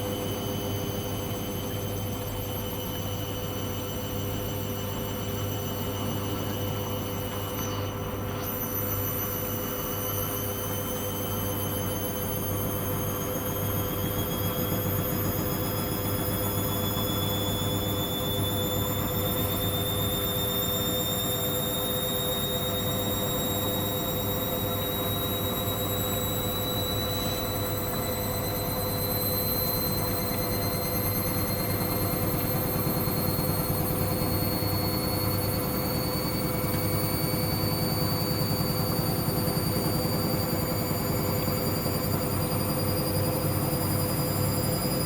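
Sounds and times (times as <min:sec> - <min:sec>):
washing machine spinning: 0:00.0 - 0:45.0
drum motor whine rising: 0:06.6 - 0:45.0.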